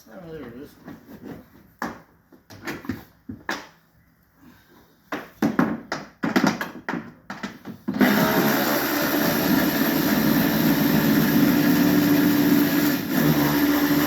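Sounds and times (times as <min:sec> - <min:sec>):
clicks and knocks of hand work: 0:05.0 - 0:08.0
cordless power tool running: 0:07.9 - 0:14.0.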